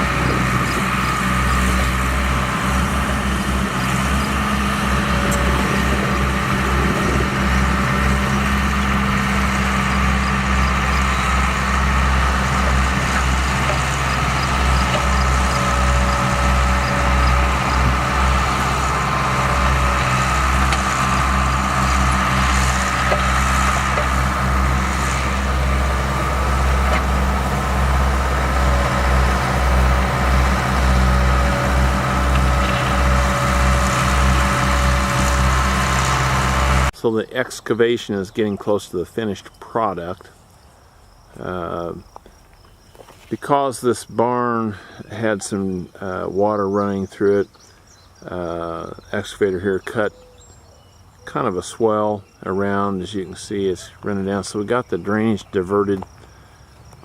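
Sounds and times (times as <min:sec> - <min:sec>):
diesel engine running: 0:00.0 - 0:37.4.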